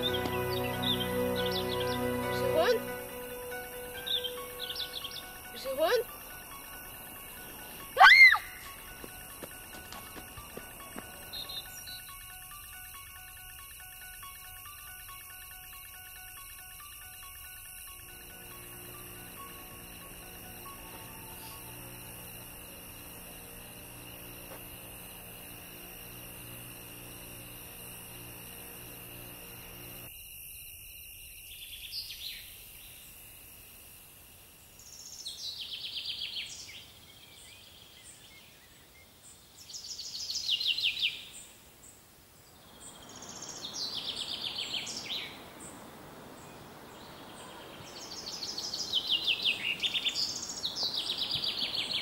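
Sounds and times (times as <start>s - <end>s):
songbird singing: 0.0s - 30.1s, 34.6s - 52.0s
steady hum and hiss: 0.0s - 30.1s, 41.4s - 52.0s
faint outdoor background noise: 0.0s - 52.0s.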